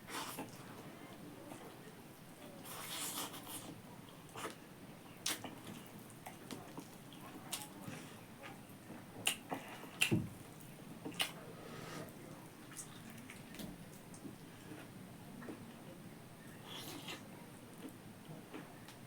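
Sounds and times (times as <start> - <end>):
chewing with wet mouth smacks: 5.2 - 11.4, 12.6 - 14.3.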